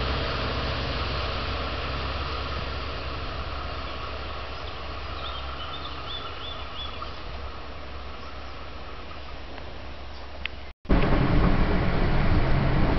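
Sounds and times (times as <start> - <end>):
train engine rumble: 0.0 - 12.9
birds chirping: 3.5 - 10.7.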